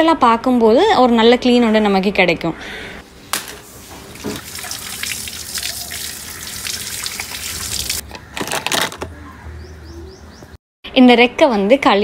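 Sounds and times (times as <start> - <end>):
water splashing on plastic racks: 3.3 - 8.0.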